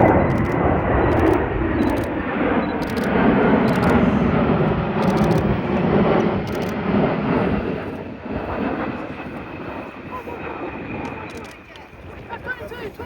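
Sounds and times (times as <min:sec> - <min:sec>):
jet aircraft flying overhead: 0:00.0 - 0:13.0.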